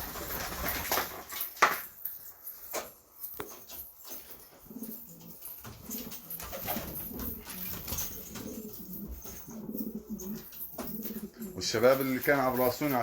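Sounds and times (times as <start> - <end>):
pigeons cooing: 4.5 - 13.0.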